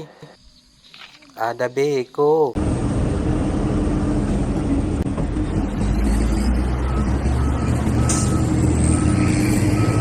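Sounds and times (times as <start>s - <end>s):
heavy truck engine running: 2.6s - 10.0s.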